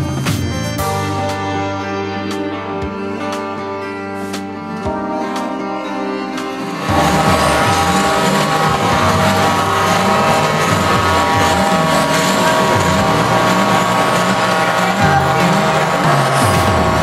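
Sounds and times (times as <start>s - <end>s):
steady high tones: 2.1s - 17.0s
truck engine revving: 4.4s - 17.0s.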